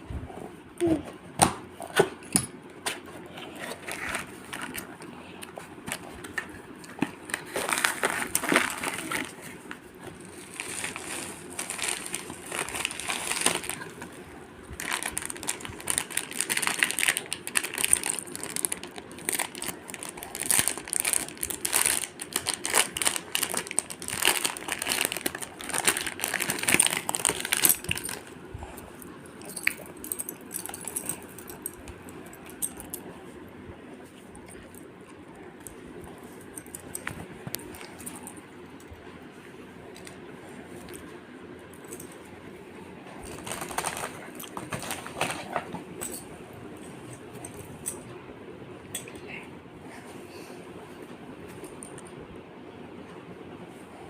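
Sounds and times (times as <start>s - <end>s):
packaging crinkling and rustling: 5.8s - 28.4s, 43.2s - 46.2s.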